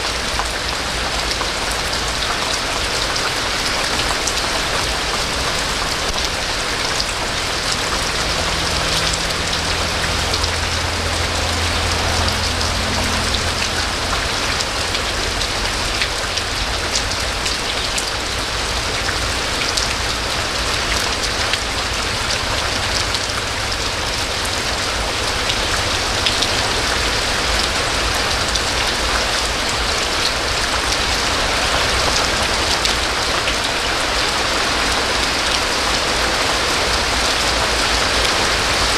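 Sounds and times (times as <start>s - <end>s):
heavy rain pattering: 0.0s - 38.9s
low hum: 4.4s - 17.1s.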